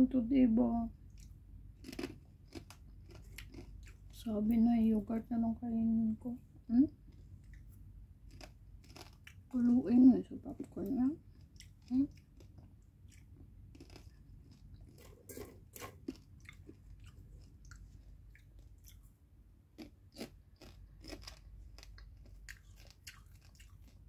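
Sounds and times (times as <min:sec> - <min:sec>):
person crunching popcorn: 0:01.1 - 0:04.2, 0:08.3 - 0:09.6, 0:11.3 - 0:19.0, 0:19.8 - 0:24.0.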